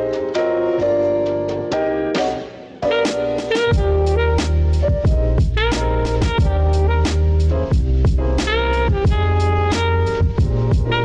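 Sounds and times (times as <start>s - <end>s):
guitar or horn melody: 0.0s - 11.0s
steady drum beat: 2.2s - 11.0s
sliding bass line: 3.1s - 11.0s.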